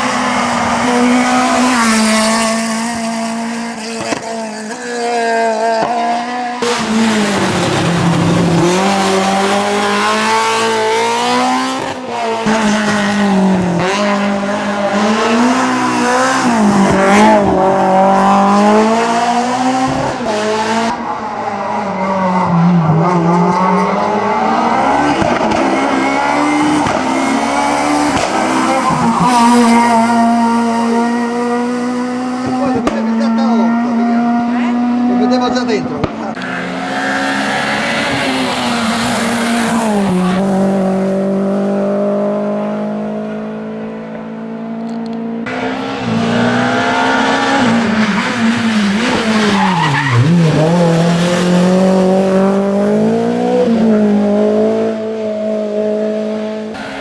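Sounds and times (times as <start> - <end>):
racing car engines revving: 0.0 - 57.0
tyre squeal: 36.4 - 40.4, 45.5 - 51.6.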